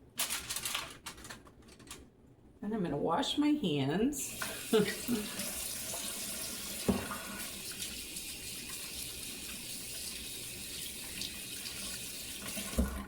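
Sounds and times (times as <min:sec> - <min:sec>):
tap running into sink: 0:05.4 - 0:07.9, 0:11.1 - 0:13.0.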